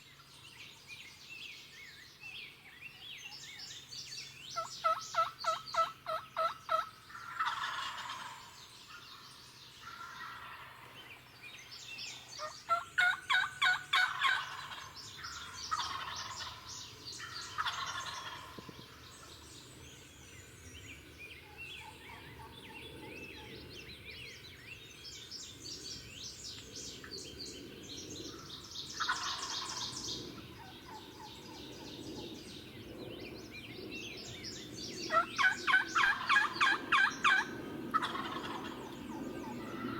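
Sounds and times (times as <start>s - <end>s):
songbirds chirping faintly: 0.0s - 39.9s
turkey yelps: 4.8s - 8.4s, 12.4s - 16.6s, 17.5s - 18.5s, 35.1s - 38.8s
wild turkeys gobbling: 4.8s - 8.6s, 9.8s - 10.8s, 12.4s - 18.6s, 29.0s - 29.9s, 35.1s - 39.9s.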